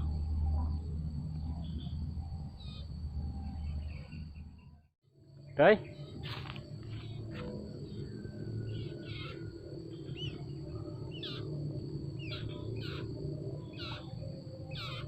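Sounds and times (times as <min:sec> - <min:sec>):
steady low hum: 0:00.0 - 0:15.0
bird chirping: 0:05.4 - 0:15.0.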